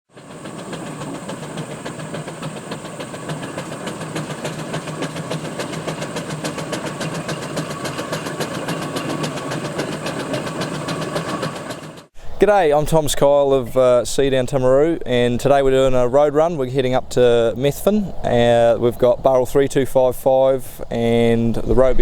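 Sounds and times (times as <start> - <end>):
steam engine rhythmic beat: 0.1 - 12.2.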